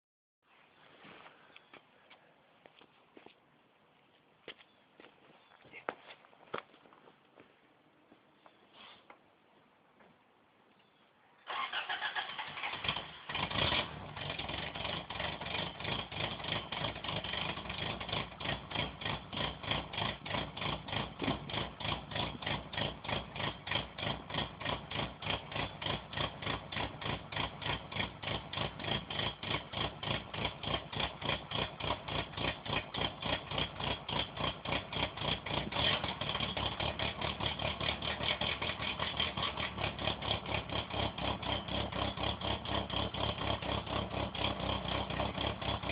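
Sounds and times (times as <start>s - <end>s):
car engine idling high: 11.5s - 45.9s.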